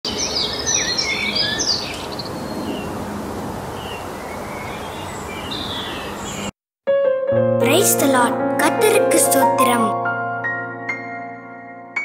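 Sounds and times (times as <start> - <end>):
birds chirping: 0.1 - 6.5.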